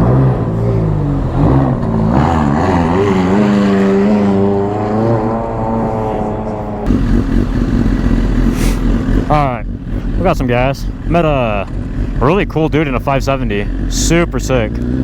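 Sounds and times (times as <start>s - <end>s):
vehicle engine pulling away: 0.0s - 15.0s.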